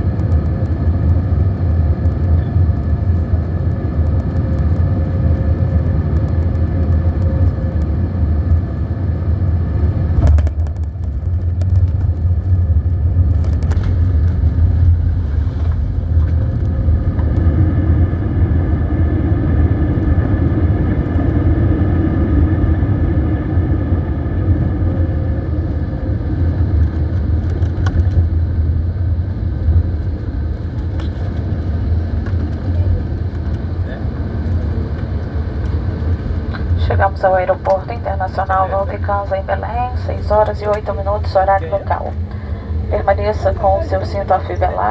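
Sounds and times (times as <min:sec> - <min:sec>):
airliner cabin engine rumble: 0:00.0 - 0:44.9
steady tones: 0:36.6 - 0:44.9.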